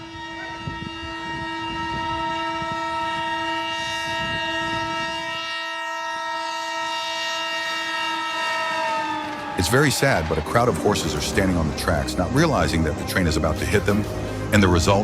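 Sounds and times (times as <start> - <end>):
train horn blast: 0.0 - 15.0
train running rumble: 9.3 - 15.0.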